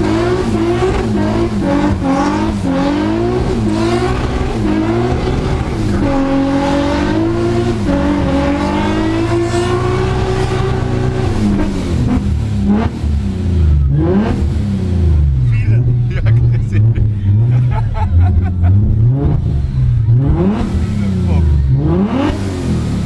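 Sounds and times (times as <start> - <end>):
car engine revving hard: 0.0 - 23.0.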